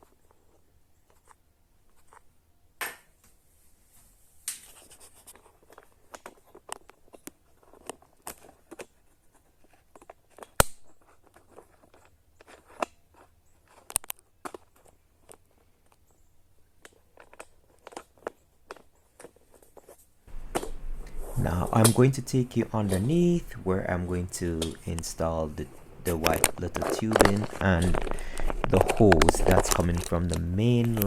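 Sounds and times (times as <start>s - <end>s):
plastic fittings clicking and scraping: 20.3s - 31.0s.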